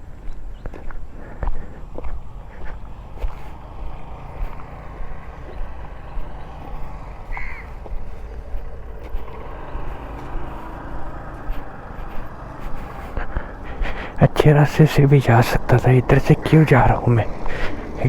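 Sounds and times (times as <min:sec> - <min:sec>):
low outdoor rumble: 0:00.0 - 0:18.0
short bird call: 0:07.3 - 0:07.7.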